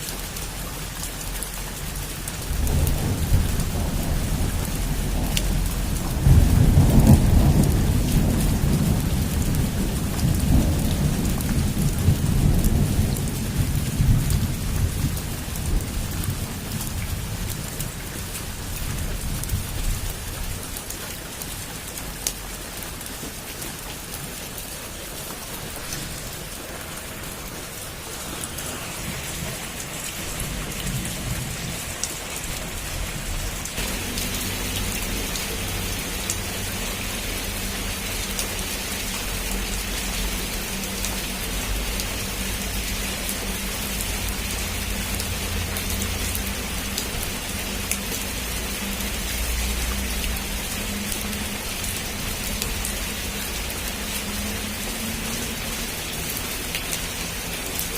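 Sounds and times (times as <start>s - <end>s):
heavy rain on a roof: 0.0s - 57.9s
low thunder rumble: 2.4s - 20.7s, 25.3s - 38.2s.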